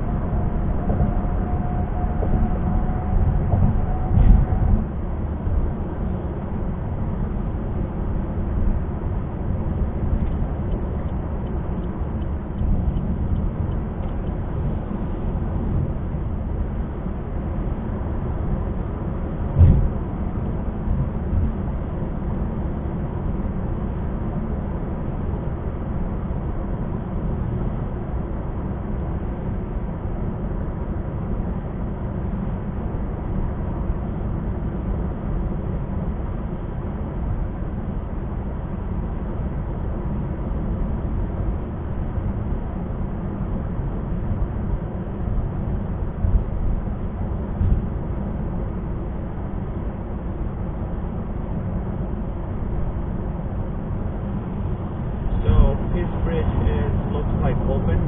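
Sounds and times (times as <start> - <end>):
car tyres and engine rumble: 0.0 - 58.0
thump inside car: 19.6 - 20.0.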